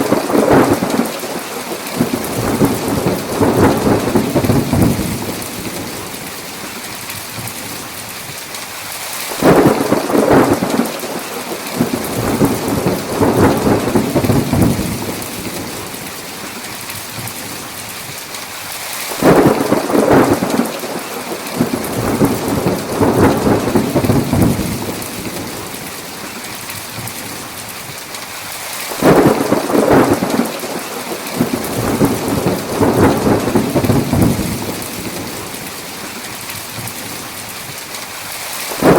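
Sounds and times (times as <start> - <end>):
thunder rolling: 0.0 - 6.3, 9.4 - 16.1, 19.2 - 25.9, 29.0 - 35.9
heavy rain: 0.0 - 38.9.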